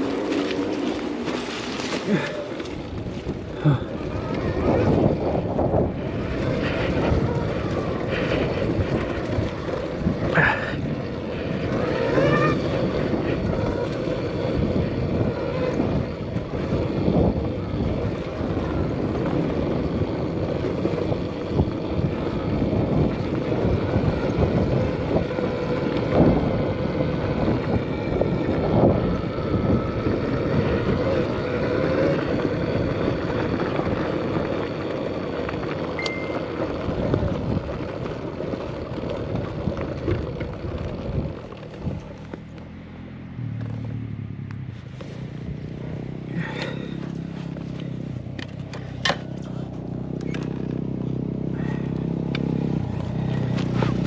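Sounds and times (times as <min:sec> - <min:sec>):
tyres on trail: 0:00.0 - 0:54.0
wind buffeting microphone: 0:00.0 - 0:54.0.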